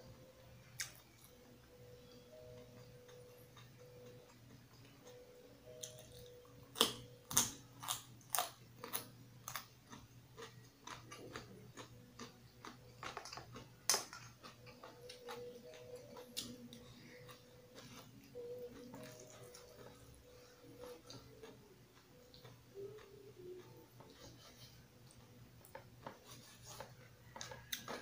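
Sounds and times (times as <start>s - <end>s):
soft chewing: 0.0s - 28.0s
carrot crunching: 5.7s - 24.7s.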